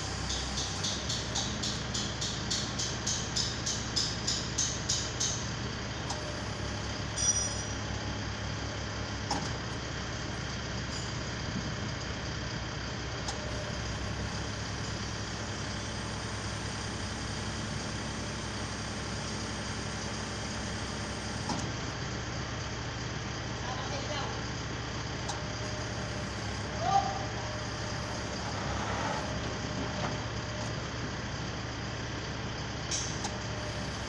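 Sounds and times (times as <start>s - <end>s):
truck engine running: 0.0s - 34.0s
sharp metallic ring: 7.2s - 7.8s.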